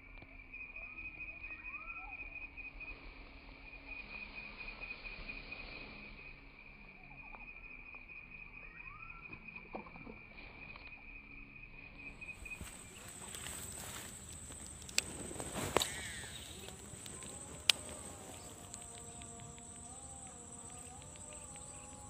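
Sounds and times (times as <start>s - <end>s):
pulsing insect trill: 0.0s - 22.0s
faint clicks: 13.0s - 22.0s.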